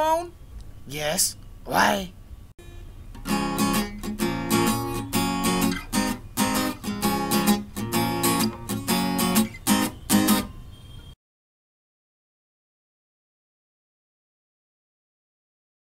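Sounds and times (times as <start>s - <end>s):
acoustic guitar strumming chords: 2.6s - 10.6s.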